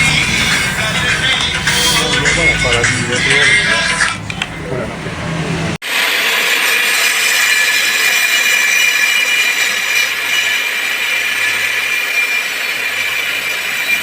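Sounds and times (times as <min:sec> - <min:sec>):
electric grinder whining: 0:00.0 - 0:04.6.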